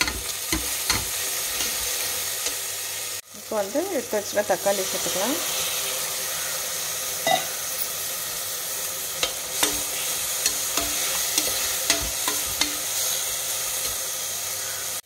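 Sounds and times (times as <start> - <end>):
vegetables sizzling in oil: 0.0 - 15.0
ladle clinking and scraping pot: 9.2 - 13.0.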